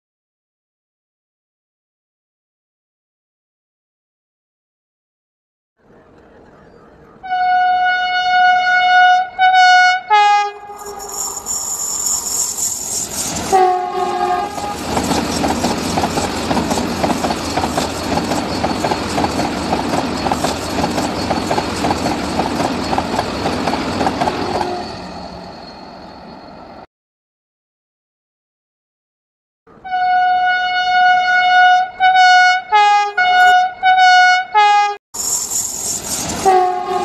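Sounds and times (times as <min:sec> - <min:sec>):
train horn blasts: 0:07.2 - 0:12.6, 0:13.5 - 0:14.9, 0:24.2 - 0:25.1, 0:29.8 - 0:35.0, 0:36.4 - 0:37.0
train rushing past: 0:10.6 - 0:26.9, 0:35.2 - 0:37.0
train wheels clattering on rails: 0:14.5 - 0:24.9.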